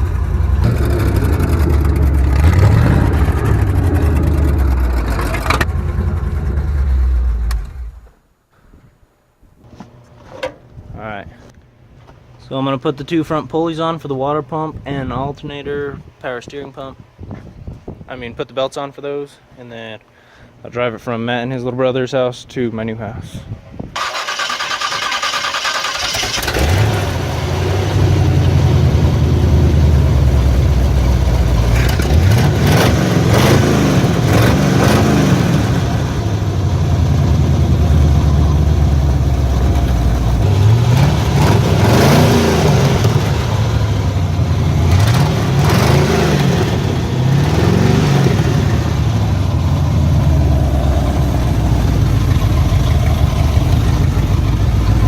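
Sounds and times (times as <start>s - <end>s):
engine revving in blips: 0.0s - 8.1s, 26.1s - 55.0s.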